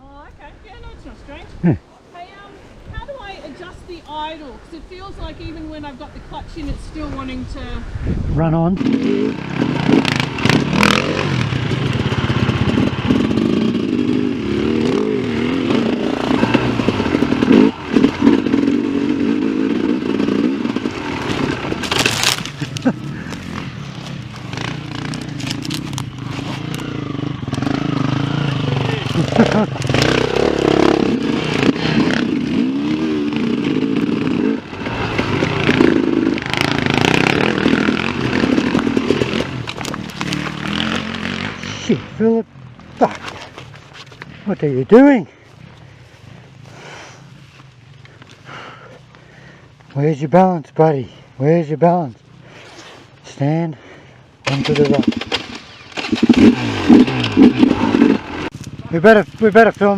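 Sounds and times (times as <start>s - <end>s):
dirt bike engine revving: 8.8s - 49.7s, 53.8s - 59.9s.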